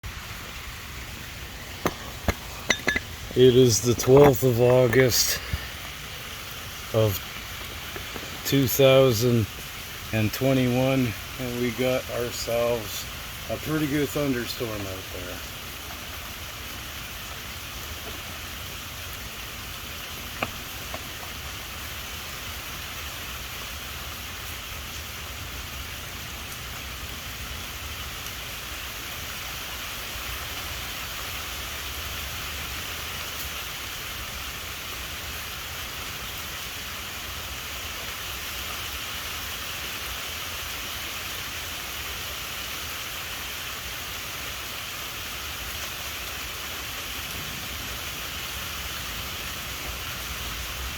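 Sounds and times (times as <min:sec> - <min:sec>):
steady rain hiss: 0:00.0 - 0:50.9.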